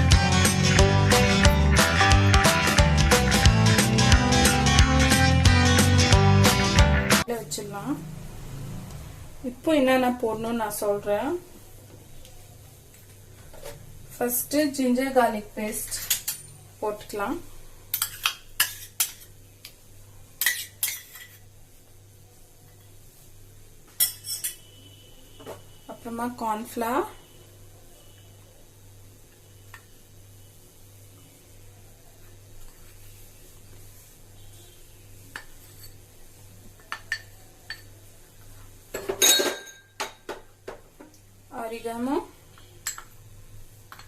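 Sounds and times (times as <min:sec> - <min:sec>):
dishes and utensils clinking: 0:17.9 - 0:19.3, 0:20.4 - 0:21.4, 0:23.9 - 0:24.8, 0:35.3 - 0:36.1, 0:36.7 - 0:38.0, 0:38.9 - 0:40.8, 0:42.5 - 0:43.2
spoon scraping against a dish: 0:17.9 - 0:19.3, 0:20.4 - 0:21.5, 0:24.0 - 0:24.8, 0:35.3 - 0:36.1.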